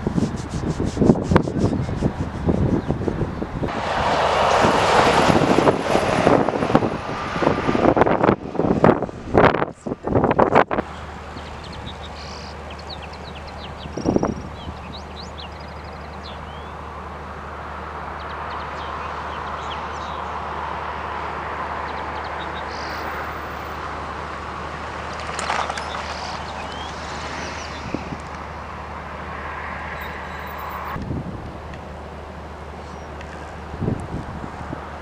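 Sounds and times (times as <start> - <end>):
wind bumps on microphone: 0.0 - 10.8, 13.8 - 15.0, 25.2 - 28.4, 30.9 - 31.6, 33.7 - 35.0
distant jet aircraft: 1.1 - 35.0
small birds chirping: 10.9 - 17.0, 18.2 - 20.4, 21.9 - 23.8, 25.6 - 28.2.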